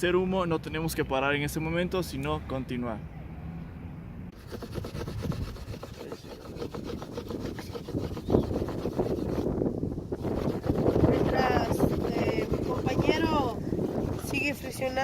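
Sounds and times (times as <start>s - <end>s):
bamboo sawing rasp: 4.4s - 15.0s.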